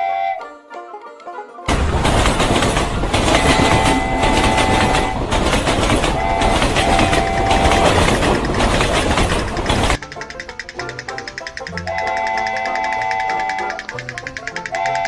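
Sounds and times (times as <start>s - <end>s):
train whistle: 0.0s - 0.6s, 3.1s - 8.4s, 11.8s - 14.0s, 14.6s - 15.0s
train rumbling: 1.7s - 15.0s.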